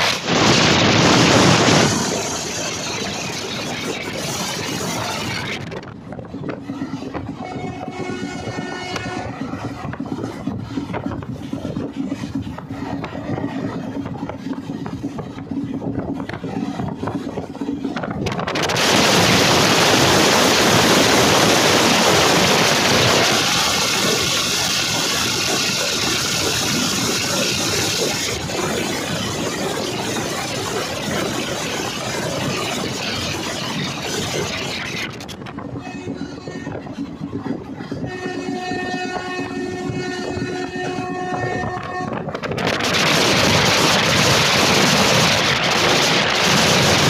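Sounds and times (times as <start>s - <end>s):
loud rushing noise: 0.0s - 7.2s, 17.9s - 35.7s
train rumble on board: 0.0s - 47.0s.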